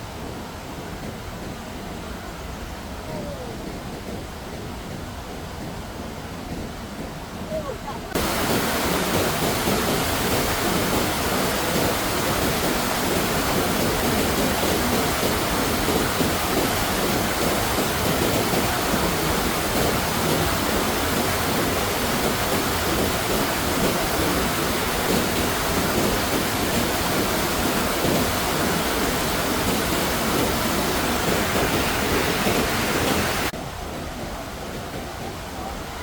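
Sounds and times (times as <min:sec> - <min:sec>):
heavy water noise: 0:07.4 - 0:36.0.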